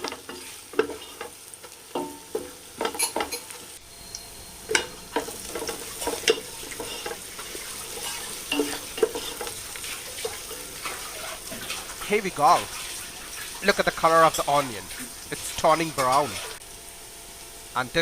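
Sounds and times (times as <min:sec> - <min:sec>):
onions sizzling in a pan: 0:00.0 - 0:18.0
utensil scraping and knocking pan: 0:04.7 - 0:12.1.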